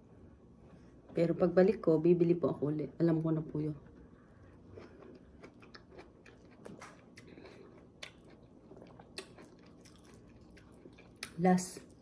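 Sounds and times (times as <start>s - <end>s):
faint wet chewing: 3.9s - 12.0s.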